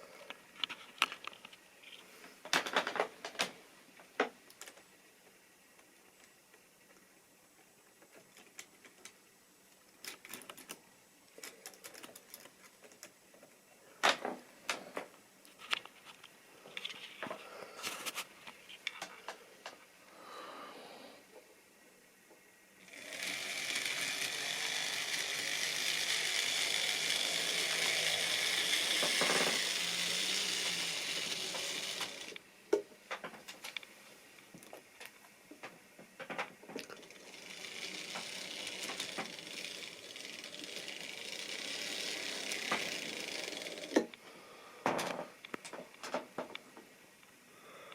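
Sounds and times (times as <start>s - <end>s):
model train motor whirring rattle: 22.8s - 32.4s, 36.3s - 44.2s
model train wheels clicking on rails: 22.8s - 32.4s, 36.2s - 44.2s.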